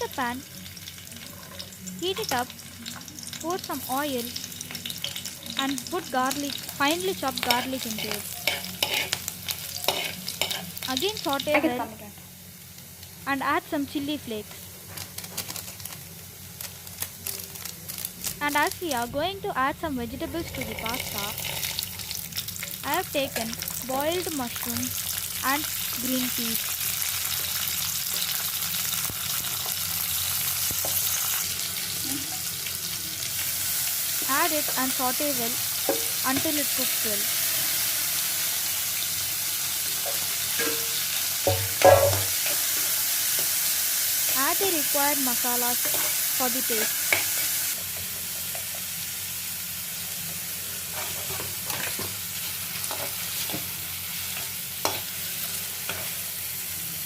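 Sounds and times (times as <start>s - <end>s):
oil sizzling in a frying pan: 0.0s - 57.0s
spatula scraping a pan: 7.6s - 9.2s.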